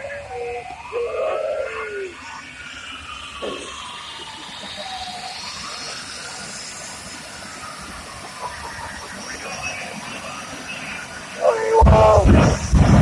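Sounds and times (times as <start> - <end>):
wailing tone: 0.0 - 2.4, 11.4 - 12.9
jet engine hiss: 0.0 - 13.0.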